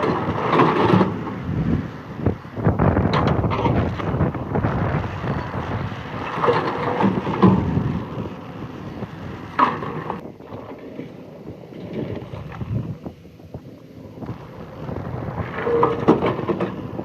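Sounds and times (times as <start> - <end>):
bucket scraping and rattling stones: 0.0 - 1.4, 6.1 - 8.1, 14.9 - 17.0
excavator engine under load: 0.0 - 17.0.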